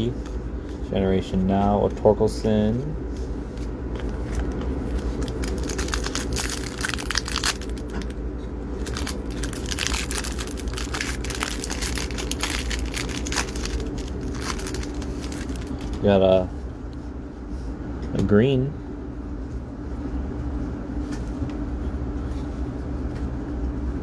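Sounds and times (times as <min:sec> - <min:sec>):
low background hum: 0:00.0 - 0:24.0
card pack wrapper crinkling: 0:04.0 - 0:16.1.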